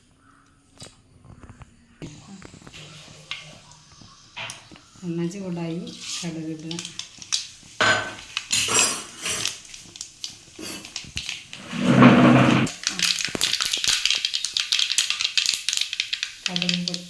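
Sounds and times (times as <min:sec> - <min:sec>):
seeds popping in hot oil: 0:02.0 - 0:11.7, 0:12.7 - 0:17.0
pan and utensil clattering: 0:05.8 - 0:10.0, 0:10.6 - 0:16.9.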